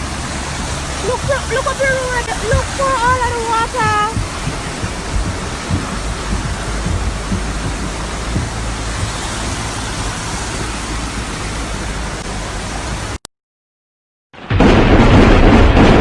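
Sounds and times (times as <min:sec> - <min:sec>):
floodwater rushing: 0:00.0 - 0:13.2
loud blast of noise: 0:14.4 - 0:16.0.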